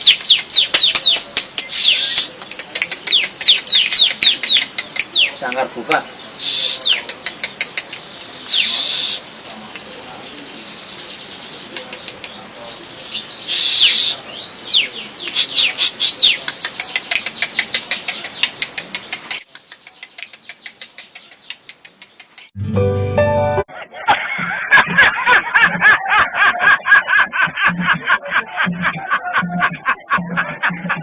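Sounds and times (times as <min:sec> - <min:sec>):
songbird chirping: 0:00.0 - 0:23.7
wingbeats: 0:15.2 - 0:22.5.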